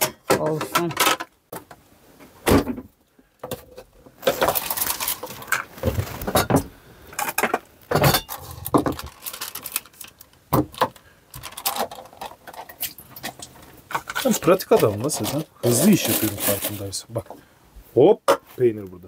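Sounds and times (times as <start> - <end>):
cutlery and dishes clattering: 0.0 - 1.3, 6.2 - 9.0.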